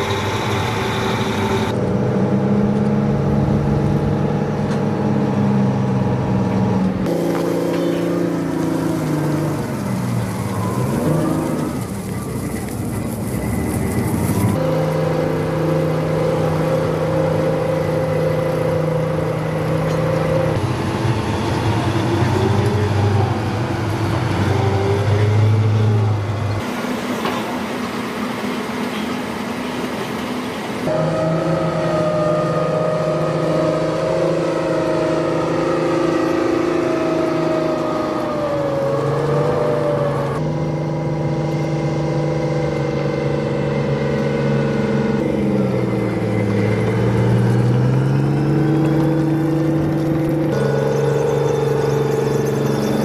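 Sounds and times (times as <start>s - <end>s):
diesel engines running: 0.0s - 53.0s.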